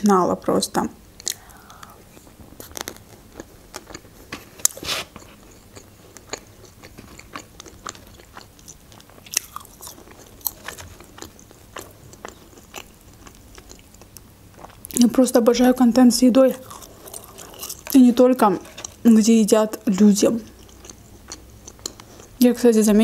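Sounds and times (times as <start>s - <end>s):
person chewing food: 1.2s - 15.0s, 16.5s - 18.0s, 18.6s - 19.0s, 20.5s - 22.4s
mouth clicks and small crunches: 1.2s - 15.2s, 16.5s - 19.1s, 19.7s - 22.4s.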